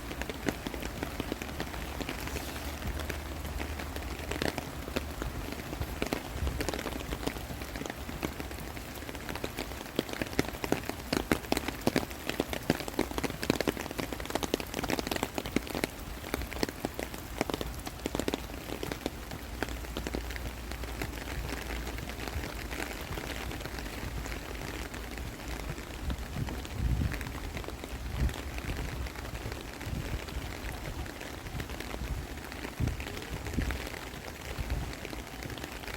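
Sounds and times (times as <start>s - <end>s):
rain pattering: 0.0s - 35.9s.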